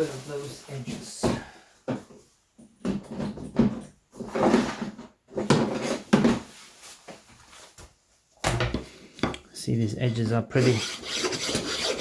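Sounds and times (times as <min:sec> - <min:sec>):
rasp scraping: 0:10.5 - 0:12.0.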